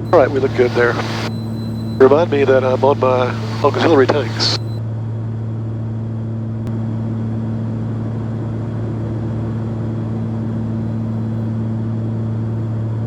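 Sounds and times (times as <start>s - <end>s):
piston engines droning: 0.0s - 4.8s.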